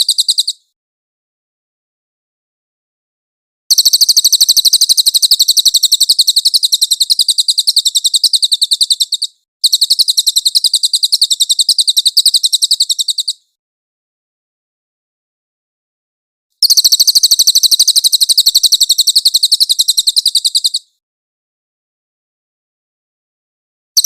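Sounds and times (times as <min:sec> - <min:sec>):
bird trilling high chirps: 0:00.0 - 0:00.6, 0:03.7 - 0:13.5, 0:16.6 - 0:21.0.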